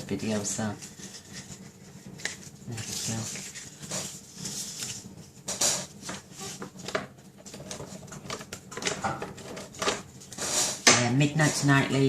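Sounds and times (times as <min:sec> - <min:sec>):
paper rustling: 0:00.2 - 0:10.8.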